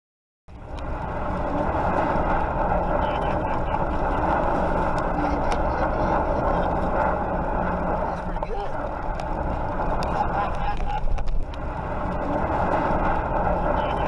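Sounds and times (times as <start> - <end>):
vehicle rushing noise: 0.5 - 14.0.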